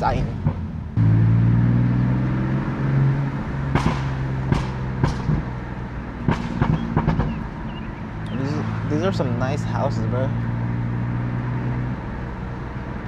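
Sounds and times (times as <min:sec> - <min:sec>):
car engine cruising: 0:00.0 - 0:13.0
exhaust pops: 0:03.6 - 0:09.1.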